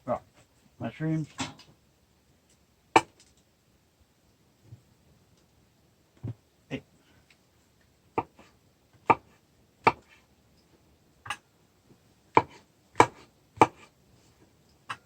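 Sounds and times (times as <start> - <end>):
knife chopping mushrooms: 8.2 - 10.1, 12.3 - 13.9.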